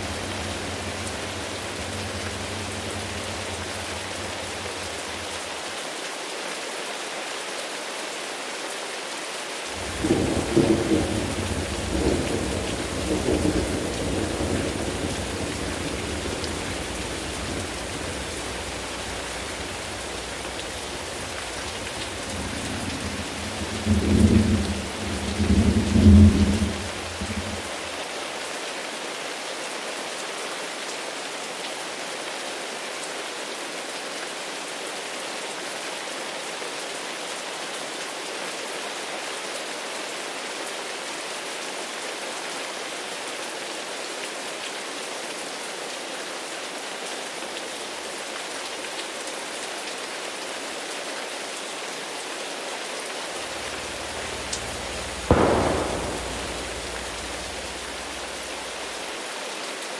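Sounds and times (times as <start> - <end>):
sharp thunderclap: 0.0 - 5.5, 9.8 - 27.8, 53.4 - 59.0
low thunder rumble: 0.0 - 5.6, 9.8 - 27.9, 53.4 - 59.0
steady rain falling: 0.0 - 59.9.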